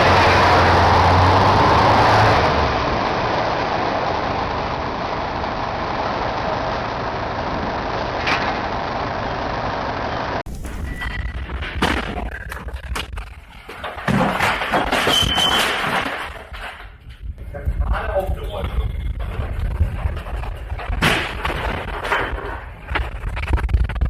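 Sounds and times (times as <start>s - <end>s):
loud steady rushing noise: 0.0s - 10.8s
low hum: 0.0s - 24.0s.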